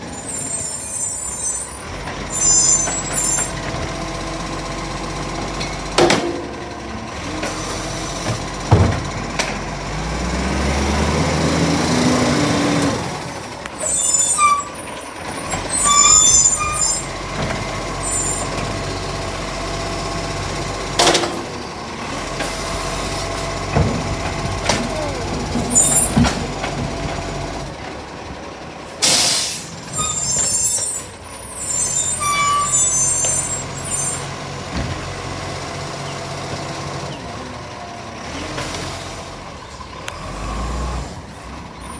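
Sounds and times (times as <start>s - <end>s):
air brakes hissing: 0.0s - 3.6s, 13.3s - 17.2s, 28.9s - 34.4s
diesel engine running: 0.0s - 41.9s
short high squeaks: 0.1s - 3.6s, 13.7s - 17.2s, 18.0s - 18.6s, 29.9s - 34.3s.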